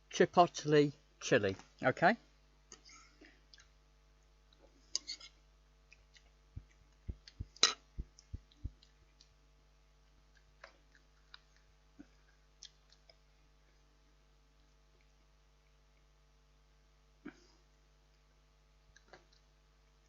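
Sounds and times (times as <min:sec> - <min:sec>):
dull low thumps: 0:06.6 - 0:08.9.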